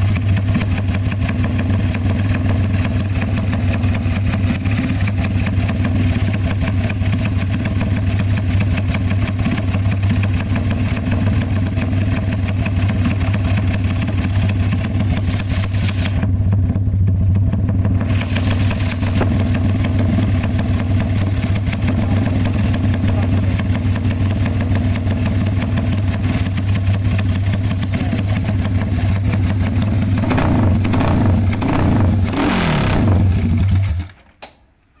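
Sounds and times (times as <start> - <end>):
engine idling with deep note: 0.0 - 34.0
engine revs blipping: 28.0 - 34.0.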